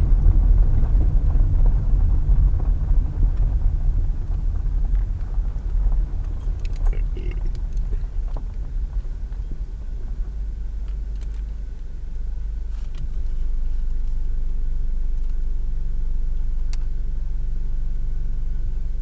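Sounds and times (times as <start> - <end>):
road and tyre rumble: 0.0 - 19.0.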